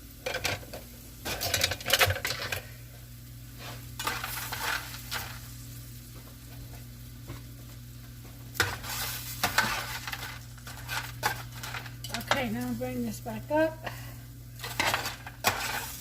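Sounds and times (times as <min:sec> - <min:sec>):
steady low hum: 0:00.0 - 0:16.0
vegetables sizzling in a frying pan: 0:00.0 - 0:16.0
utensil scraping a pan: 0:03.6 - 0:05.4, 0:08.6 - 0:12.6, 0:14.6 - 0:16.0.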